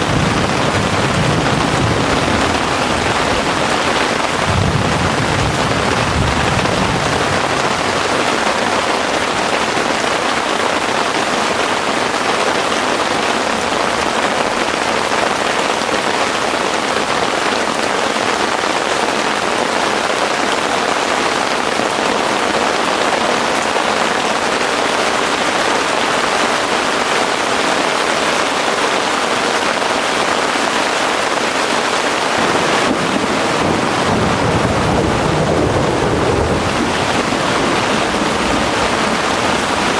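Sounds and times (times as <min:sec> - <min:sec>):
distant thunder rumble: 0:00.0 - 0:09.3, 0:32.4 - 0:39.9
heavy rain falling: 0:00.0 - 0:39.9.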